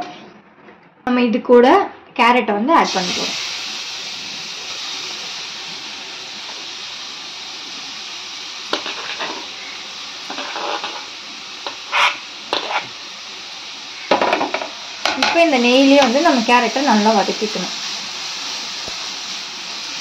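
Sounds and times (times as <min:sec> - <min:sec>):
carrot sizzling in pan: 0:02.8 - 0:20.0
hot ghee hissing: 0:02.8 - 0:20.0
scraping on chopping board: 0:10.3 - 0:11.1, 0:11.7 - 0:12.9.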